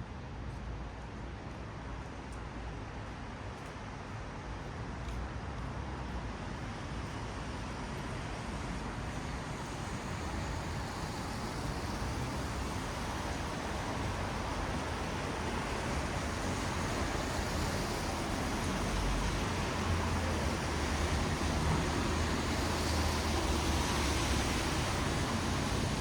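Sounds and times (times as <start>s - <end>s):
tyres hissing on wet road: 6.6s - 26.0s.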